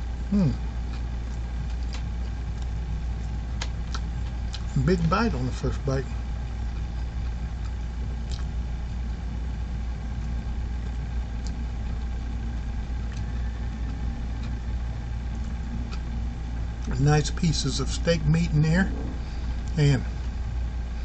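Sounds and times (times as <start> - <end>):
low mechanical hum: 0.0 - 21.0
person chewing food: 0.3 - 5.2, 6.6 - 9.2, 10.2 - 11.7, 13.0 - 16.2.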